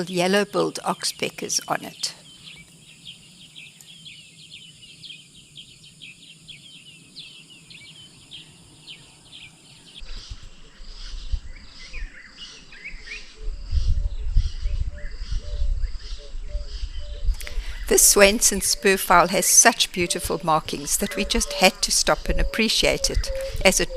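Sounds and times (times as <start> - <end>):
wild birds chirping: 0.0 - 23.9
wind rumble on microphone: 8.5 - 23.9.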